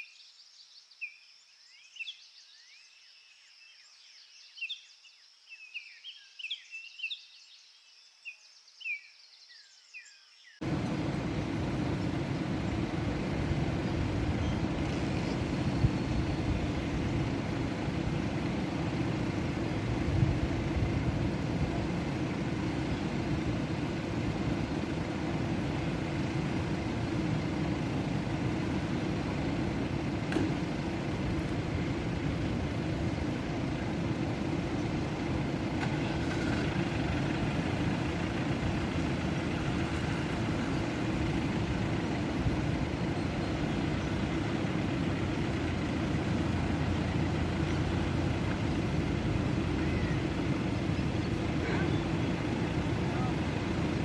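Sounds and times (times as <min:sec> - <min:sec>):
vehicle engine idling: 0:10.6 - 0:54.0.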